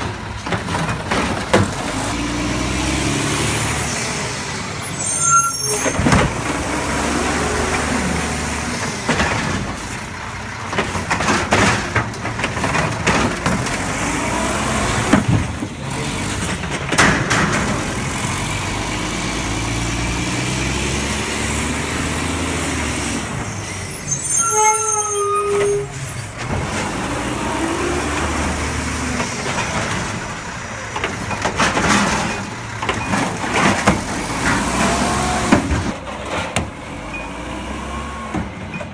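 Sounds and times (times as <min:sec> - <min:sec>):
garbage truck engine running: 0:00.0 - 0:04.8, 0:05.9 - 0:23.9, 0:25.6 - 0:38.9
brake squeal: 0:04.8 - 0:07.0, 0:23.1 - 0:26.4, 0:37.0 - 0:38.9.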